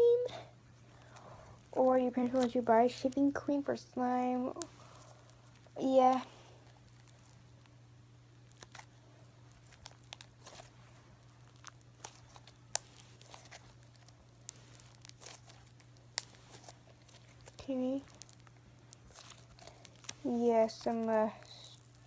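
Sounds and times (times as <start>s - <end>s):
steady low hum: 0.0s - 22.0s
slime sticky pops and crackles: 8.4s - 22.0s.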